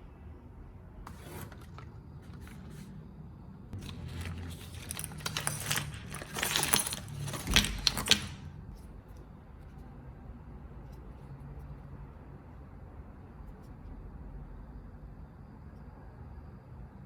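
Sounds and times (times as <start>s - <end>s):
hard objects scraping and clattering: 1.1s - 3.0s, 3.8s - 8.5s
packaging rustling: 1.1s - 3.0s, 3.8s - 8.4s.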